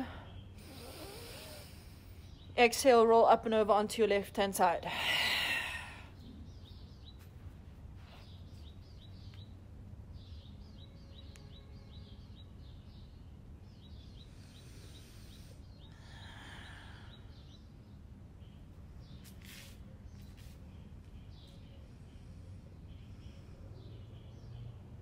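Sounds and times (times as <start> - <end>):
soft rushing hiss: 19.0 - 21.2.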